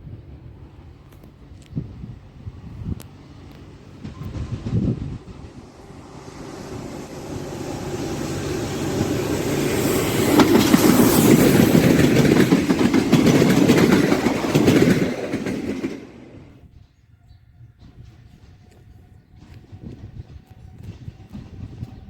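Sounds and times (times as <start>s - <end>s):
freight train passing: 0.0s - 22.0s
wheels clattering over rail joints: 3.2s - 17.0s.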